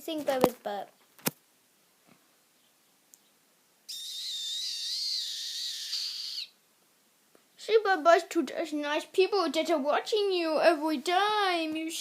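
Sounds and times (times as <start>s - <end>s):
budgerigar whistled call: 3.9s - 6.6s.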